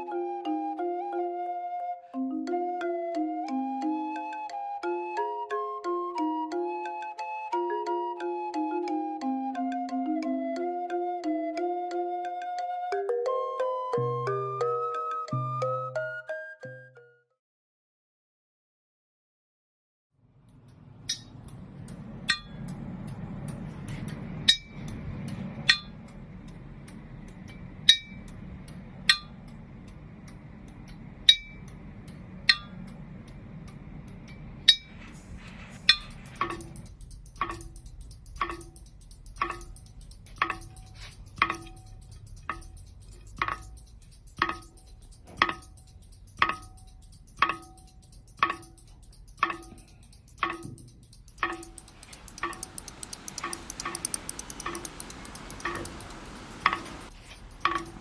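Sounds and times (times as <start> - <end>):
steady pitched ticking: 2.2 - 12.5, 20.3 - 58.0
low hum: 20.2 - 48.0, 50.8 - 58.0.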